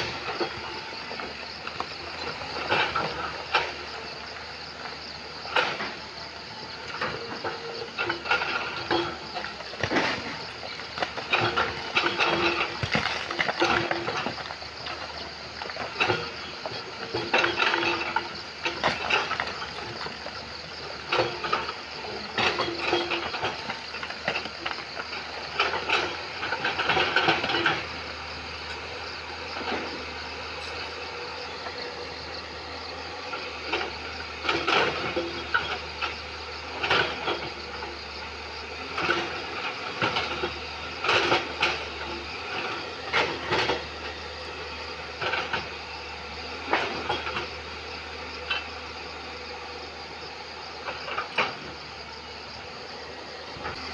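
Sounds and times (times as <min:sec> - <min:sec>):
excavator engine running: 0:00.0 - 0:53.9
bucket clanking against rock: 0:06.9 - 0:27.9, 0:39.0 - 0:44.0.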